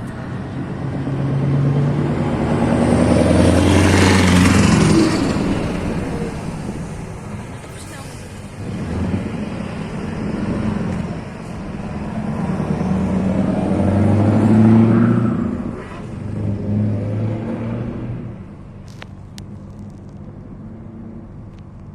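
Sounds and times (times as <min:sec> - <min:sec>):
truck engine accelerating: 0:00.0 - 0:21.9.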